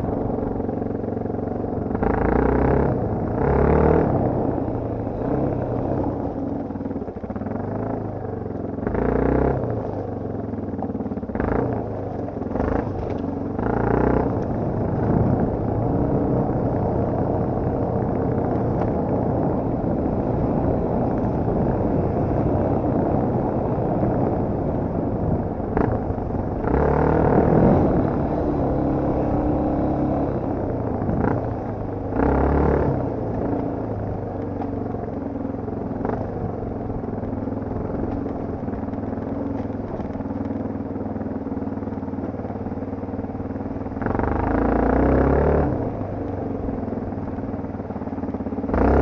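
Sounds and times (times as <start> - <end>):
dirt bike engine revving: 1.9 - 6.4, 25.8 - 33.7.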